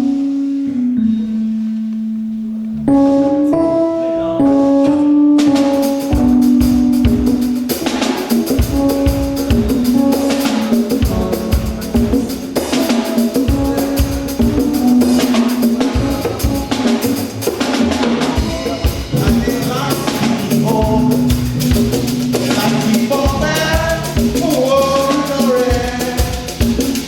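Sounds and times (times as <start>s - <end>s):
church music with drums: 0.0s - 3.3s, 4.0s - 27.0s
voices singing: 9.6s - 27.0s.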